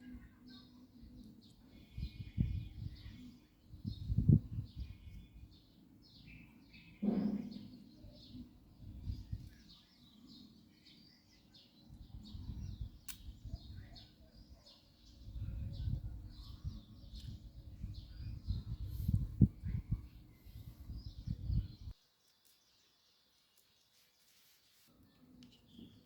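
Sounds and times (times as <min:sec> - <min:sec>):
small birds chirping: 0:00.0 - 0:26.0
thump: 0:07.0 - 0:07.7
sharp click: 0:13.1 - 0:13.3.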